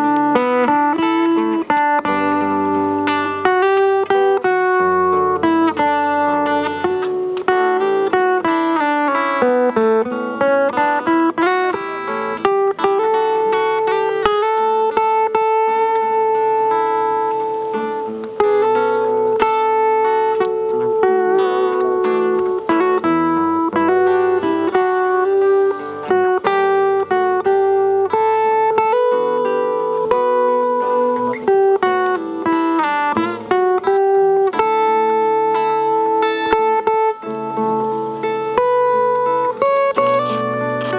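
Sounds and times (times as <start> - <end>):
strummed acoustic guitar: 0.0 - 40.9
sustained held notes: 22.6 - 28.1.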